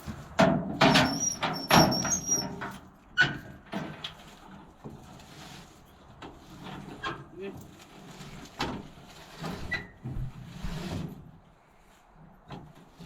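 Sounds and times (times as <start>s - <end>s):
high squeak: 1.0s - 2.6s.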